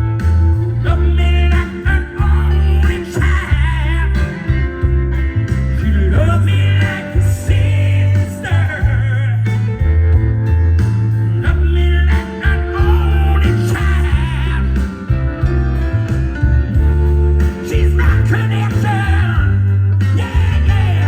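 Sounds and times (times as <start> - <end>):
drums: 0.0 - 21.0
electric guitar: 0.0 - 21.0
heavy bass: 0.0 - 21.0
man singing: 0.7 - 10.0, 11.3 - 15.2, 17.4 - 21.0.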